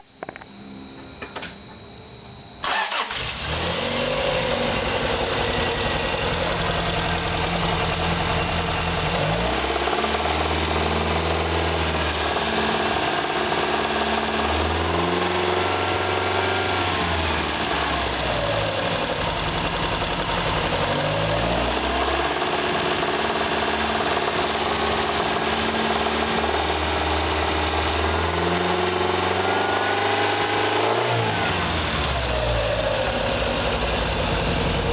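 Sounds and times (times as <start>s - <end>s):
car engine cranking and revving: 2.6s - 34.9s
engine knocking: 18.8s - 27.7s.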